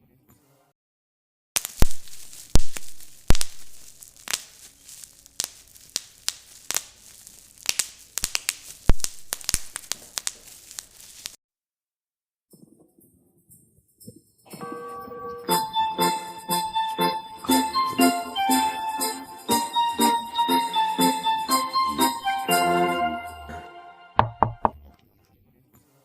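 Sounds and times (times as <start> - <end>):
continuous crackling: 1.6 - 11.4
sharp pops and clicks: 1.6 - 11.4, 24.2 - 25.0.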